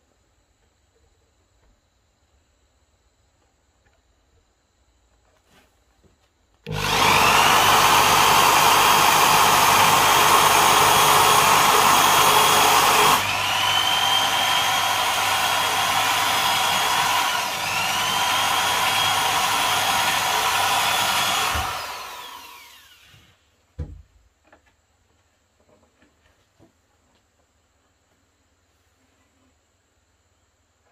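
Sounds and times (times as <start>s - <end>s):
power tool motor whine: 6.7s - 23.4s
knock: 23.8s - 24.1s.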